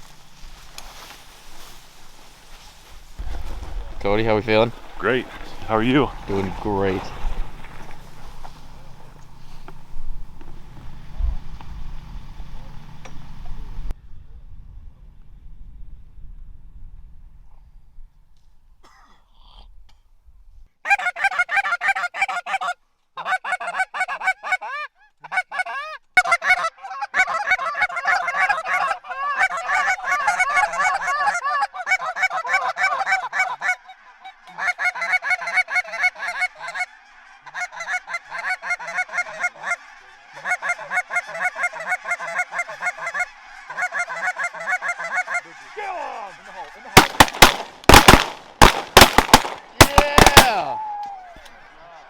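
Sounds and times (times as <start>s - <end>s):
geese honking: 0.0s - 11.1s, 20.9s - 52.0s
shotgun blasts: 47.0s - 50.7s.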